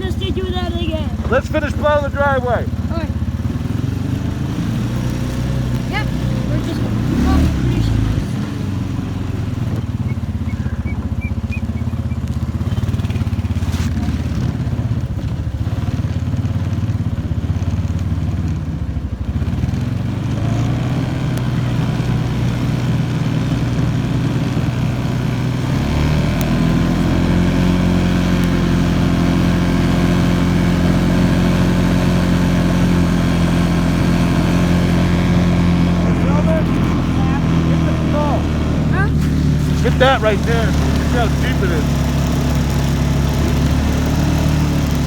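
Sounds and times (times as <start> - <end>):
atv engine running: 0.0 - 45.0.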